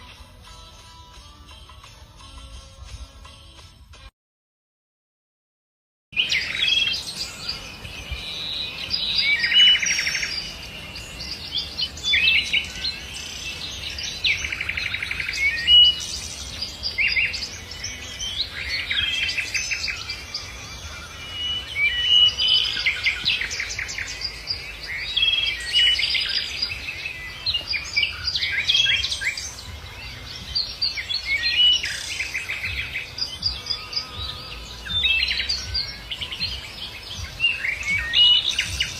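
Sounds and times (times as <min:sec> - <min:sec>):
songbirds chirping: 0:06.2 - 0:38.9.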